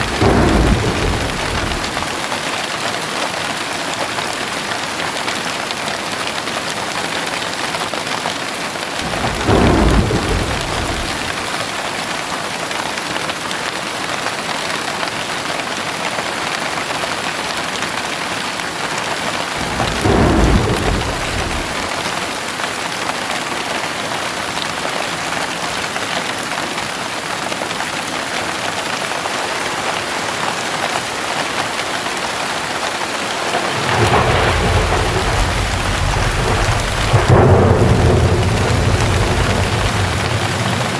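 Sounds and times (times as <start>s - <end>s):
thunder rumbling: 0.0s - 2.6s, 9.0s - 11.8s, 19.5s - 22.3s, 33.4s - 40.9s
heavy rain falling: 0.0s - 40.9s.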